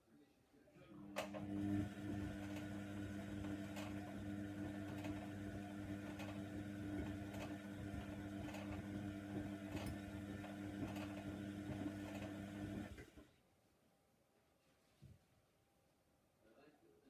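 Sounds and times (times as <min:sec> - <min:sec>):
washer dryer motor hum: 0:01.0 - 0:13.3.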